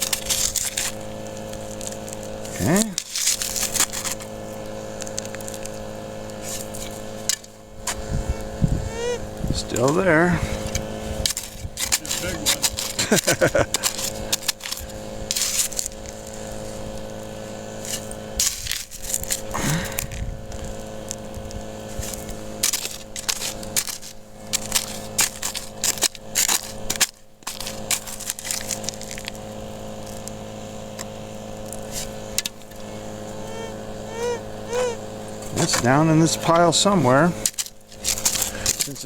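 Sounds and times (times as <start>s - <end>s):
rocks and gravel crunching: 0.0s - 39.0s
steady low hum: 0.0s - 39.0s
metal detector warbling tone: 8.3s - 9.3s, 33.5s - 35.0s.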